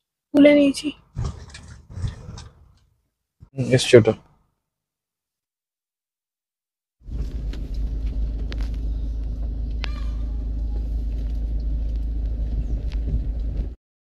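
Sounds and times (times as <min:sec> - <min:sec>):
vehicle rumble: 0:07.0 - 0:13.8.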